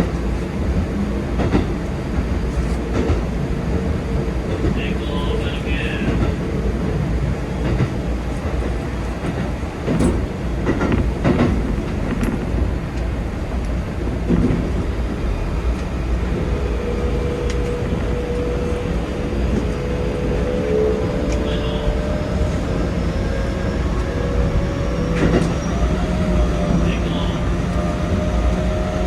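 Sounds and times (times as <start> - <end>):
train running low rumble: 0.0 - 29.0
clicks and knocks from track: 1.4 - 3.3, 7.6 - 14.7.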